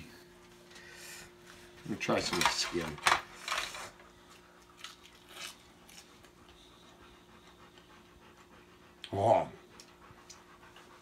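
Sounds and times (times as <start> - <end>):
faint steady hum: 0.0 - 11.0
quiet chewing: 4.0 - 11.0.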